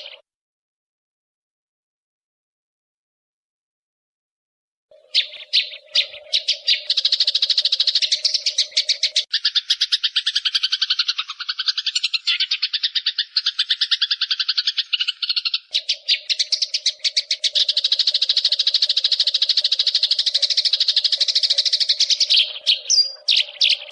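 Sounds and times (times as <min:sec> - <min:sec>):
sparrows chirping rapidly: 0:00.0 - 0:00.2, 0:04.9 - 0:23.9.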